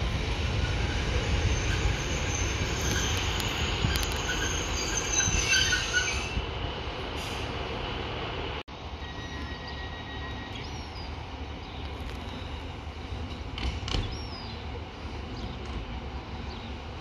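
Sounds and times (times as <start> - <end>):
train rumble: 0.0 - 17.0
high-pitched wheel squeals: 1.4 - 6.4.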